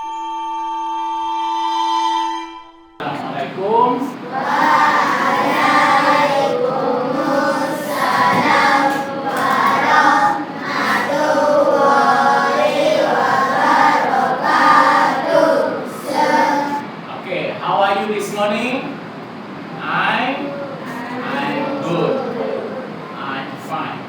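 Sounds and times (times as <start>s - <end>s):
children singing in unison: 3.0s - 16.9s, 20.5s - 23.1s.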